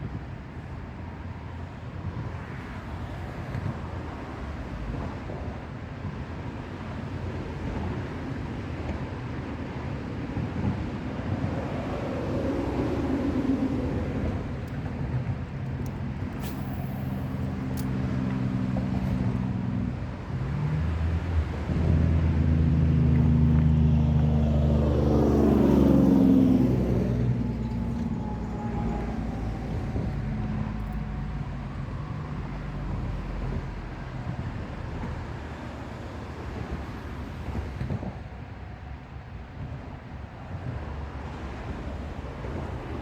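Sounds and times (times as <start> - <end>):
vehicles driving past: 11.3 - 38.7.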